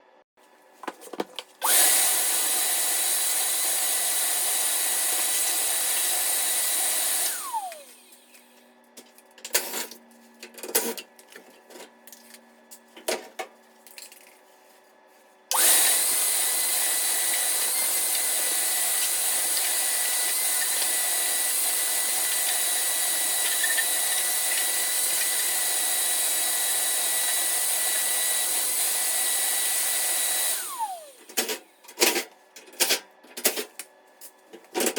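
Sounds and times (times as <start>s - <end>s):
electric motor whining: 1.6s - 8.5s, 15.5s - 31.2s.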